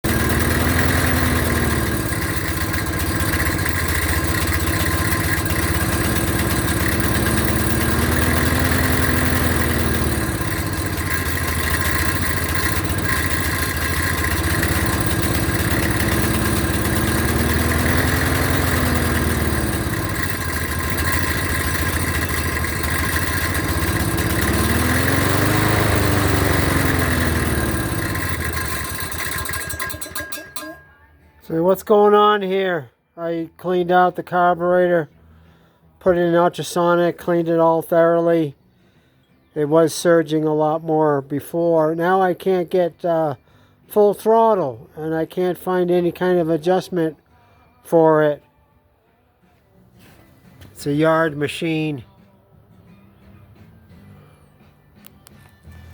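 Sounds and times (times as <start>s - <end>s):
lawnmower engine surging: 0.0s - 30.9s.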